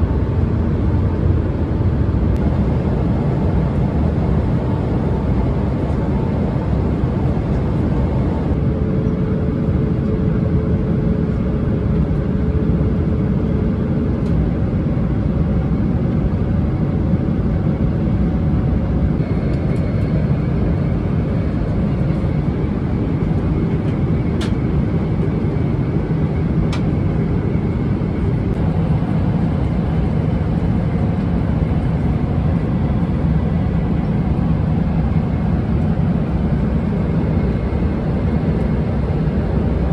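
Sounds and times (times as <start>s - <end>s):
airliner cabin roar: 0.0s - 39.9s
faint pitch-shifting hums: 2.4s - 8.6s.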